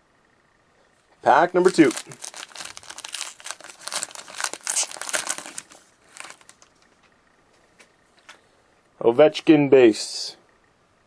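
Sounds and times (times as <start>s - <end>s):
card pack wrapper crinkling: 1.2s - 6.8s.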